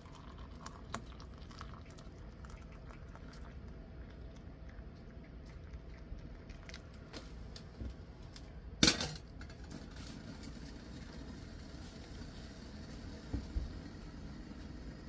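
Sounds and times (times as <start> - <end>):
tableware clinking: 8.8 - 9.6.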